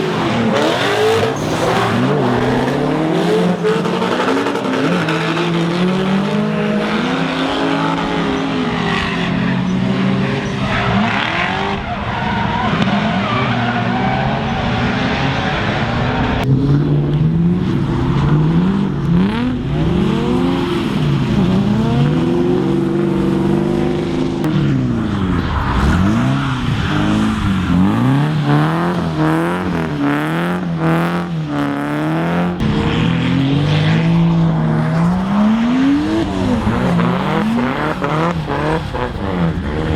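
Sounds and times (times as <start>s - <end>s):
tyres squealing and skidding: 0.0s - 5.8s, 7.0s - 16.4s, 19.9s - 30.5s
car engines revving: 0.0s - 39.9s.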